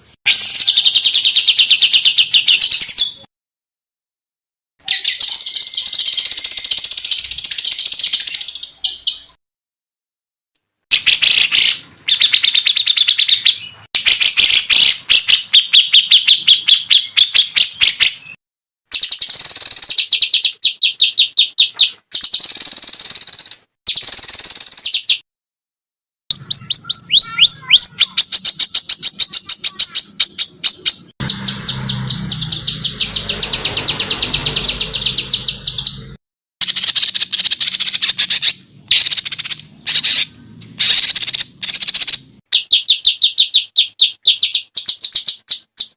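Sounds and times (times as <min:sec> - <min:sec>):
songbird rattling chirps: 0:04.9 - 0:09.3, 0:18.9 - 0:25.2, 0:26.3 - 0:45.9.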